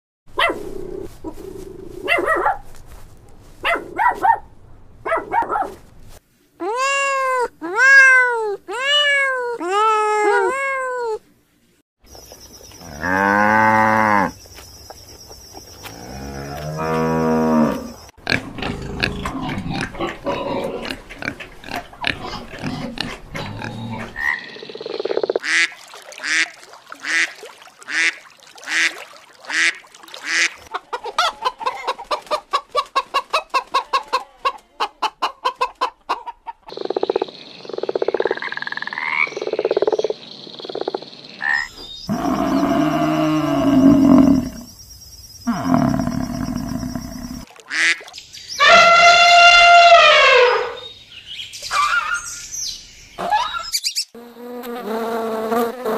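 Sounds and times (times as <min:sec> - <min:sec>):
small dog yapping: 0:02.0 - 0:02.6, 0:03.6 - 0:04.4, 0:09.7 - 0:10.6
cow mooing: 0:42.1 - 0:44.6, 0:45.5 - 0:47.2
rising and falling animal calls: 0:48.6 - 0:51.0.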